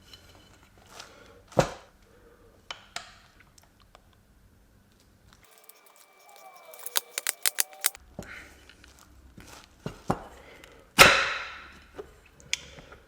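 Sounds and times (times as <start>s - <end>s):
metal parts knocking and clicking: 5.5s - 8.0s.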